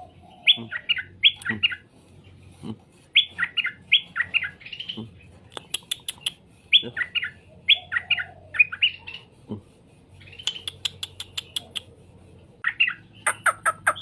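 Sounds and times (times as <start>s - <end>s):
sharp clicking bird notes: 1.3s - 1.6s, 5.5s - 6.4s, 10.4s - 11.9s
bulbul warbling song: 12.6s - 14.0s.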